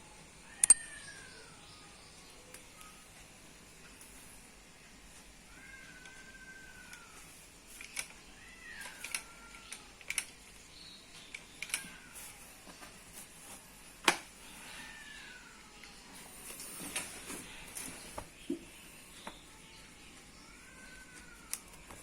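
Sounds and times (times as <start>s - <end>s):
sharp clicks and taps: 0.6s - 0.9s
cat meowing: 8.4s - 9.9s.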